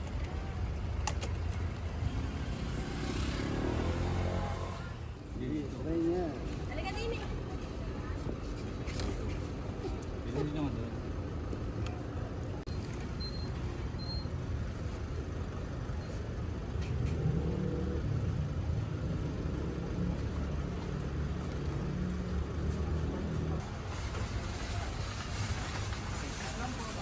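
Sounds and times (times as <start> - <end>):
vehicle engine rumbling: 0.0 - 27.0
short high beeps: 13.2 - 14.3.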